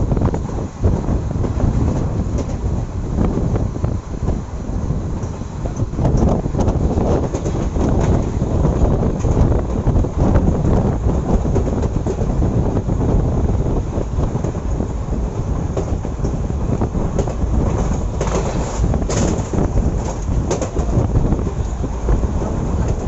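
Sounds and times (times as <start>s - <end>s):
train wheels rumbling on rails: 0.0s - 23.0s
wheels clicking over rail joints: 5.0s - 23.0s.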